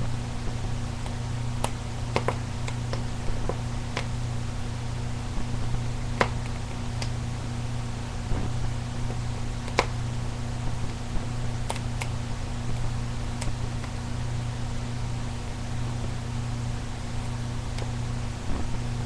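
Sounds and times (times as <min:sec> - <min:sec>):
steady hiss and low hum: 0:00.0 - 0:19.0
fire crackling and popping: 0:00.4 - 0:04.3.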